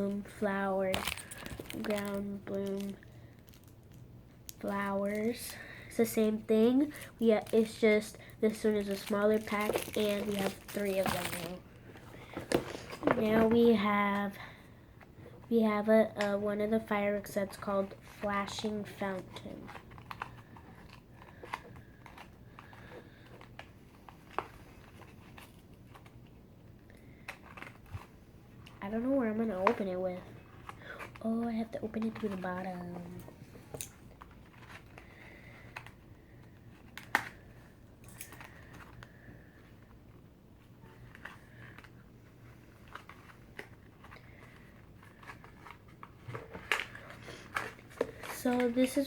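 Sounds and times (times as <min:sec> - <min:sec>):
package crinkling: 0:00.7 - 0:06.2, 0:06.8 - 0:13.7.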